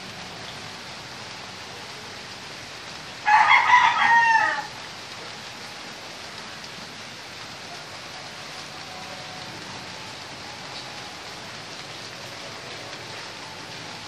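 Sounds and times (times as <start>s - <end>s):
rooster crowing: 3.2s - 4.7s.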